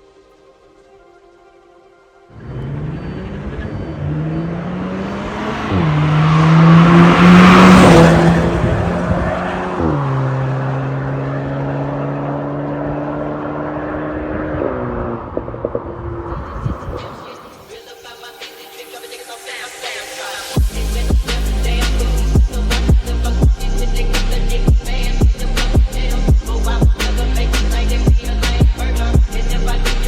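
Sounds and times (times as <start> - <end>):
car engine accelerating: 2.3 - 17.7
rush of noise: 2.4 - 10.6, 13.6 - 23.5.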